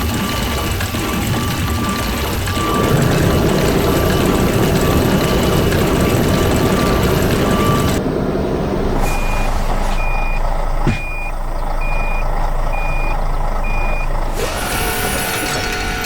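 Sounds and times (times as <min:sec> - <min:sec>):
low engine rumble: 0:00.0 - 0:16.0
truck reversing alarm beeping: 0:00.0 - 0:16.0.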